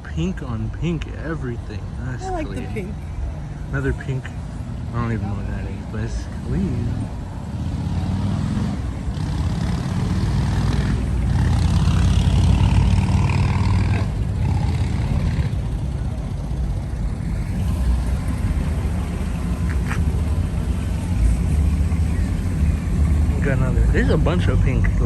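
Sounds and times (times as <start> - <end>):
car engine low rumble: 0.0 - 25.0.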